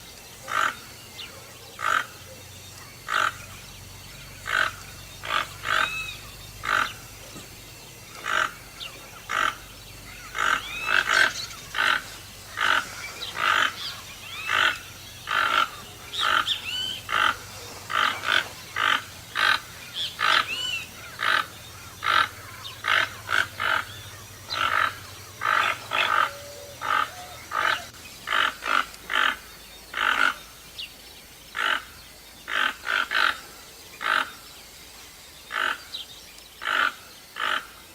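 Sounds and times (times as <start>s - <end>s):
toucan calling: 0.0s - 30.6s
higher chirps: 0.4s - 29.4s.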